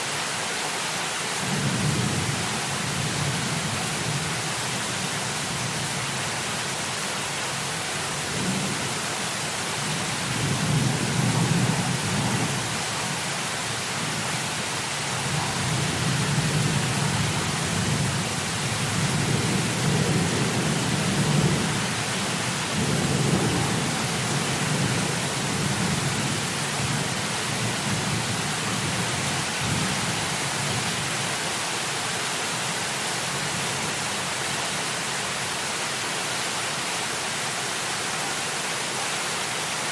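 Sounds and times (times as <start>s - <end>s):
heavy rain falling: 0.0s - 39.9s
rolling thunder: 22.7s - 26.3s.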